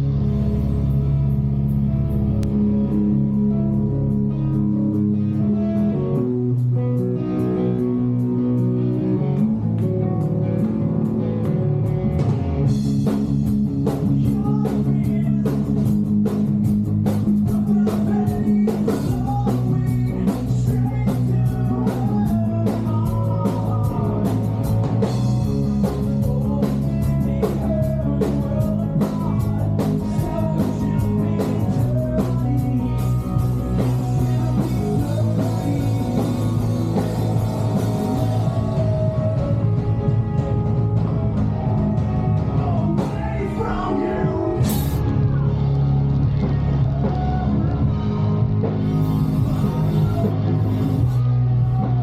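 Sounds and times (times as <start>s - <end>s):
bass guitar: 0.0s - 52.0s
distorted electric guitars: 0.0s - 52.0s
drum kit beat: 12.1s - 45.5s, 46.4s - 52.0s
person singing lead vocal: 13.9s - 16.0s, 17.4s - 40.6s, 41.9s - 52.0s.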